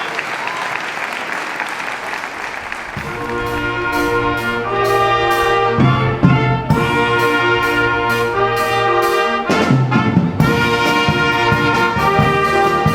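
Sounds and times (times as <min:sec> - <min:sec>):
applause: 0:00.0 - 0:03.5
brass ensemble playing chords: 0:02.6 - 0:12.9.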